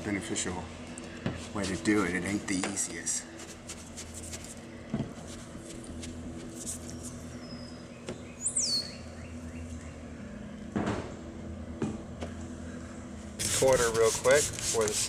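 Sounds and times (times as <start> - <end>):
steady low hum: 0.0 - 15.0
bird whistle call: 8.4 - 9.4.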